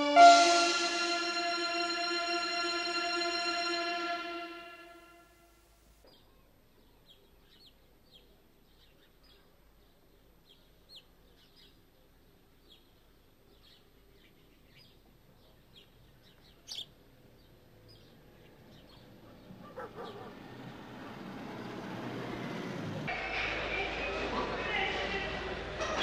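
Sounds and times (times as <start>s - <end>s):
sharp sound: 0.0s - 5.4s
small birds chirping: 6.1s - 20.2s.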